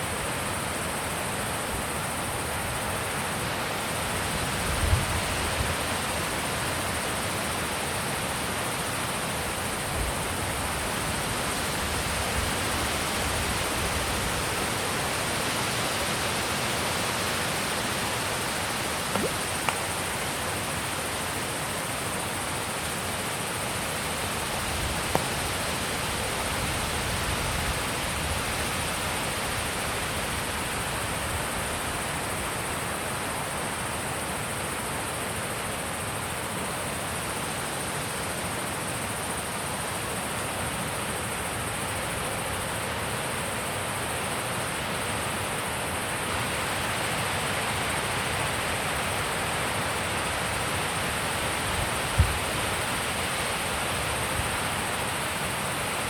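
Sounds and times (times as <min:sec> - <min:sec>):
wind gusts thumping microphone: 0:52.1 - 0:52.5.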